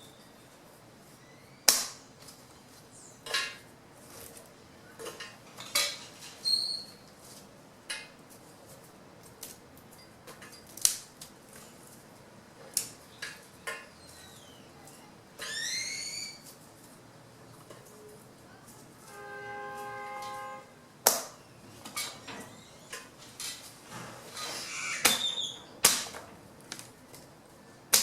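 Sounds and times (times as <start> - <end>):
branches being chopped: 1.7 - 2.0, 21.0 - 21.4, 25.0 - 27.3.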